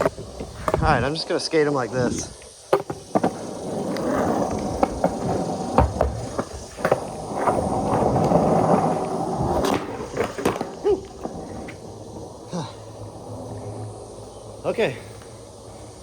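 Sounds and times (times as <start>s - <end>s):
skateboard clacks: 0.0s - 14.2s
skateboard wheels rumbling: 0.0s - 16.0s.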